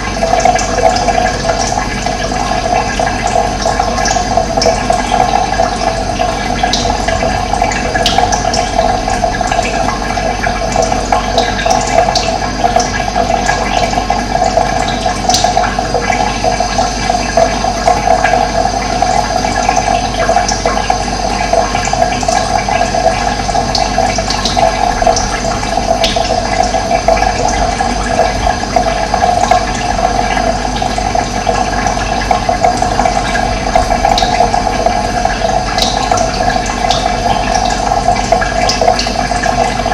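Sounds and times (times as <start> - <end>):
water rushing: 22.6 - 39.9.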